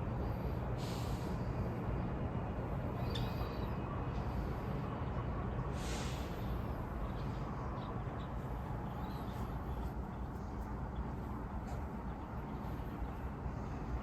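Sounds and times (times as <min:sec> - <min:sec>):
low outdoor rumble: 0:00.0 - 0:14.0
brief hiss: 0:05.7 - 0:06.3.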